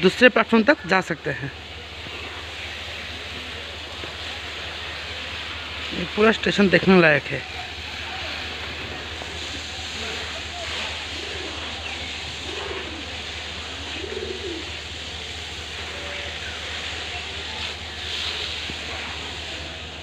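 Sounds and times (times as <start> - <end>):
steady low hum: 0.0 - 20.0
pigeons cooing: 7.6 - 17.3.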